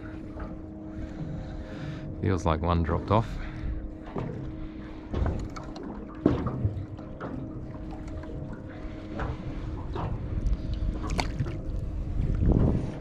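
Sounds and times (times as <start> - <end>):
low hum: 0.0 - 13.0
water splashing and dripping: 5.1 - 11.8.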